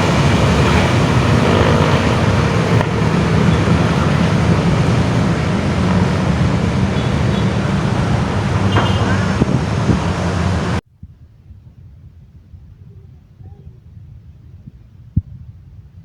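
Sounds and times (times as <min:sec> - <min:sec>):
train wheels rumbling: 0:00.0 - 0:10.8.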